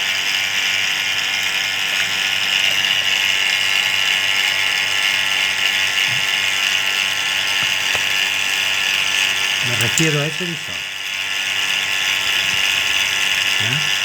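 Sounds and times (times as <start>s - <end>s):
vacuum pump running with rattle: 0.0s - 14.0s.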